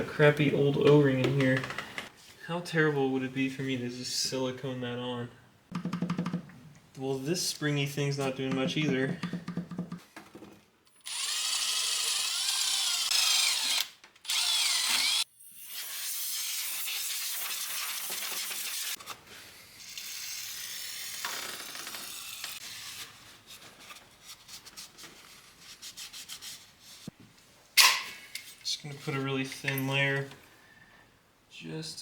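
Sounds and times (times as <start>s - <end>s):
handheld power tool whining: 11.0s - 16.0s.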